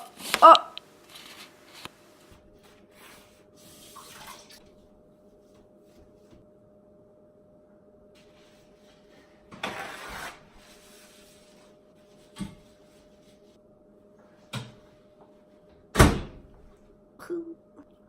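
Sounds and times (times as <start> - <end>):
faint steady hum: 0.0 - 9.6, 10.4 - 18.0
scraping rustle: 1.0 - 1.9.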